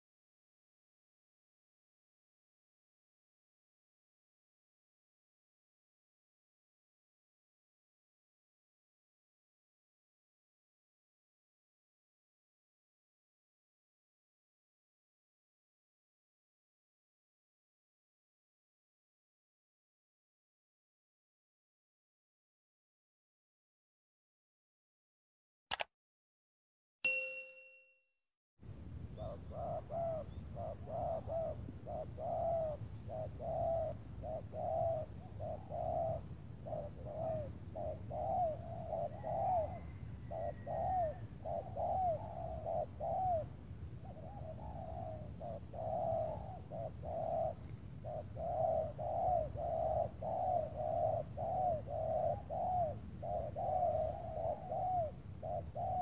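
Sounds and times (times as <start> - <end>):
doves cooing: 29.2 - 56.0.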